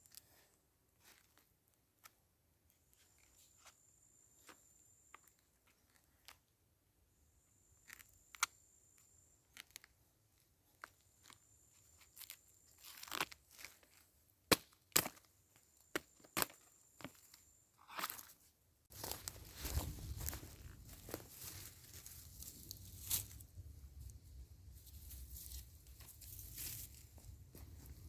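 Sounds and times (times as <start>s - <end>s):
brush rustling: 18.9s - 28.0s.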